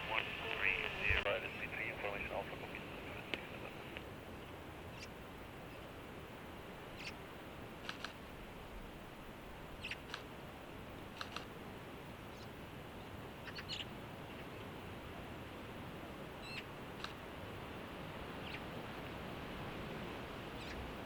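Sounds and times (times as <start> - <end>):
radio receiver hiss: 0.0 - 4.2.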